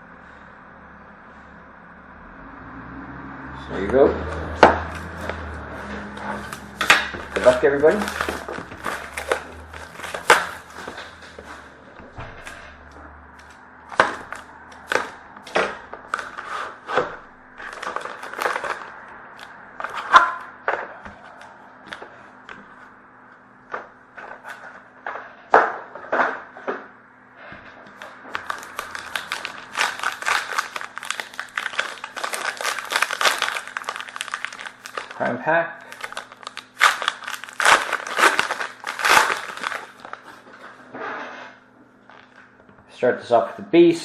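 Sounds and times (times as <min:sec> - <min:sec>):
plastic wrapping crinkling: 0:04.3 - 0:11.7, 0:13.4 - 0:20.5, 0:28.0 - 0:40.7.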